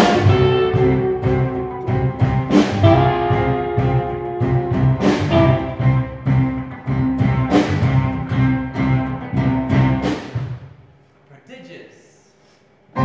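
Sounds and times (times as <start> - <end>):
cello and double bass: 0.0 - 10.0
strummed plucked string chords: 0.0 - 10.2.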